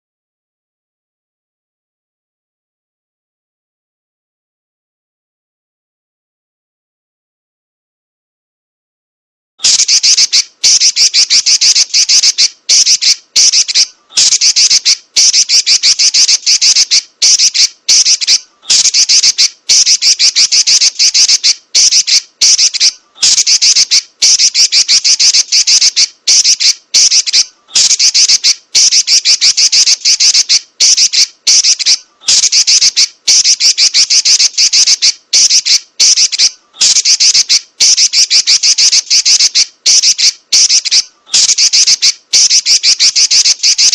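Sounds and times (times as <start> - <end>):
bird chattering high: 9.6 - 43.9.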